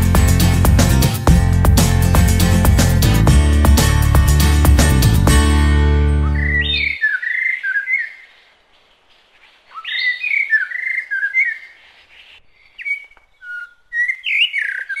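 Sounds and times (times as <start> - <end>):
bird singing: 6.2 - 15.0.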